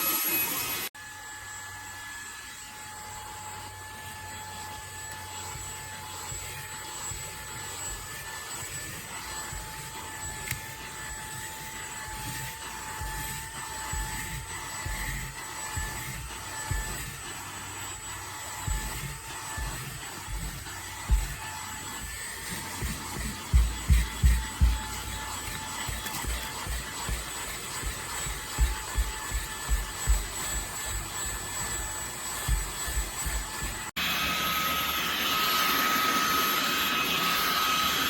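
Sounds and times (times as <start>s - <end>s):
handheld vacuum motor whine: 0.0s - 38.0s
low handling bumps: 18.6s - 33.9s.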